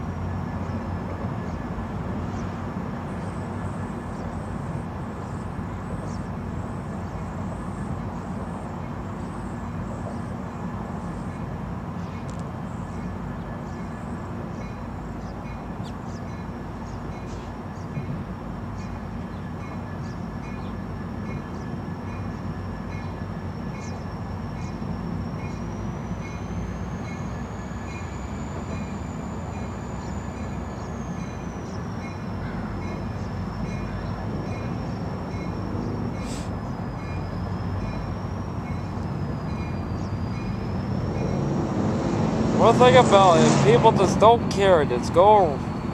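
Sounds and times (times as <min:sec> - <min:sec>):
distant train rumbling: 0:00.0 - 0:45.9
railroad crossing bell ringing: 0:12.9 - 0:41.6, 0:42.6 - 0:45.9.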